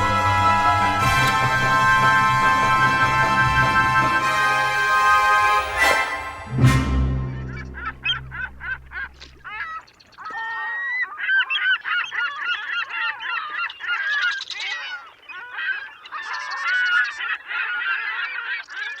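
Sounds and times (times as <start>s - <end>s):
geese honking: 0.0s - 13.1s.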